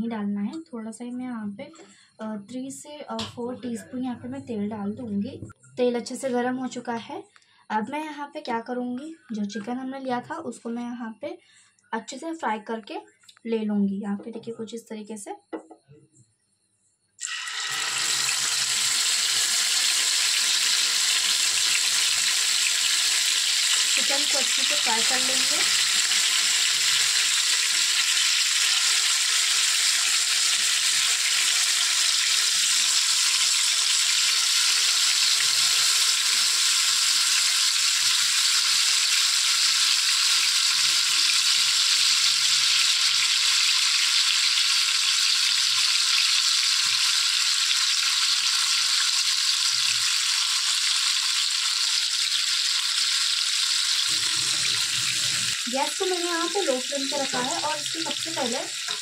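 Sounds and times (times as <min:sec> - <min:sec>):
meat sizzling in frying pan: 0:17.2 - 0:59.0.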